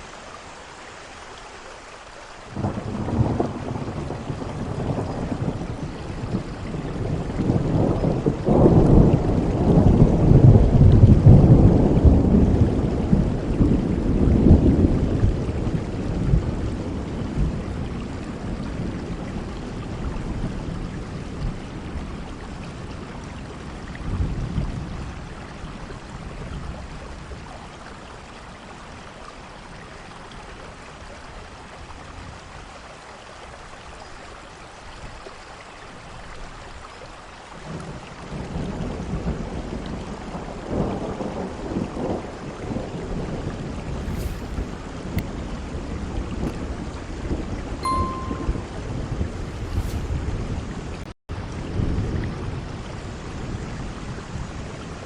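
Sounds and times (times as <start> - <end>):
heavy rain: 0.0 - 55.0
rolling thunder: 2.6 - 22.2, 37.7 - 47.8.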